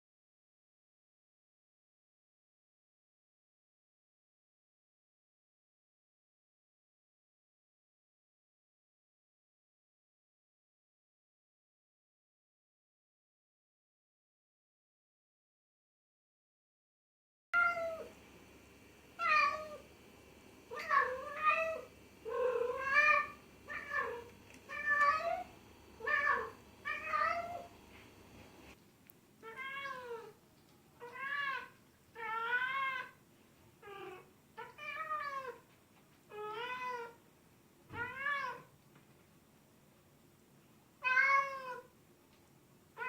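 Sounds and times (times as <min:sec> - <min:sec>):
cat meowing: 0:17.6 - 0:18.1, 0:19.2 - 0:19.8, 0:20.7 - 0:27.7, 0:29.4 - 0:30.4, 0:31.0 - 0:33.2, 0:33.8 - 0:35.6, 0:36.3 - 0:37.2, 0:37.9 - 0:38.7, 0:41.0 - 0:41.9.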